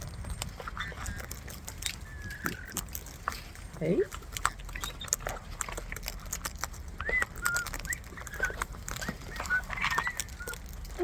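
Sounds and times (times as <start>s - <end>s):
beaks cracking seed: 4.1s - 11.0s.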